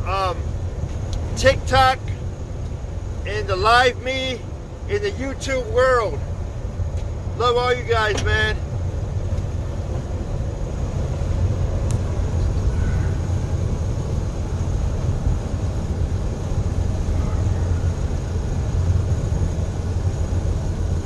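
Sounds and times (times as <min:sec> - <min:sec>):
road and tyre noise: 0:00.0 - 0:21.0
truck engine drone: 0:00.0 - 0:21.0.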